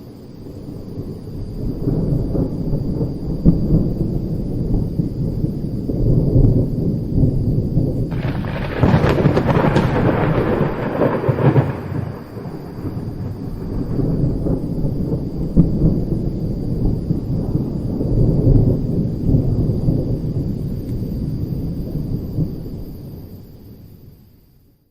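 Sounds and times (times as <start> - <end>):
low rumbling thunder: 0.0 - 23.8
sharp thunderclap: 1.5 - 23.0.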